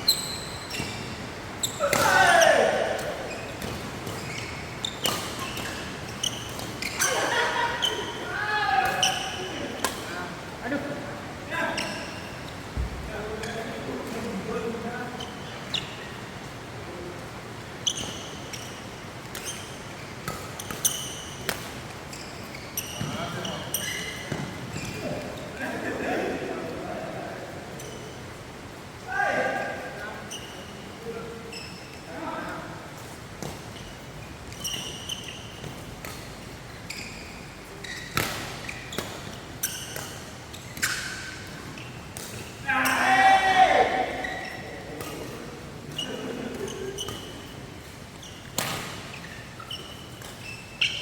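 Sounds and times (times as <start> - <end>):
shoes squeaking on court floor: 0.0 - 10.9, 11.5 - 26.1, 27.6 - 28.5, 29.5 - 51.0
rackets hitting shuttlecock: 38.0 - 43.0, 44.9 - 45.4.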